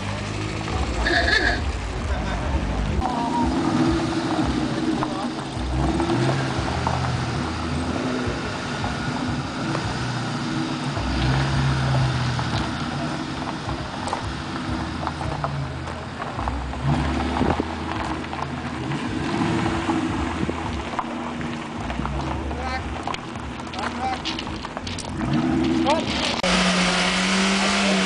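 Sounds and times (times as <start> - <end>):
car engine at low revs: 0.0 - 28.0.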